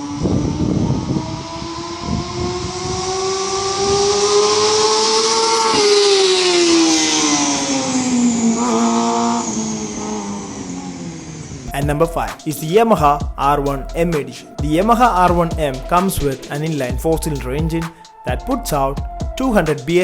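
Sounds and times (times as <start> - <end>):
motorcycle engine at high revs: 0.0 - 11.7.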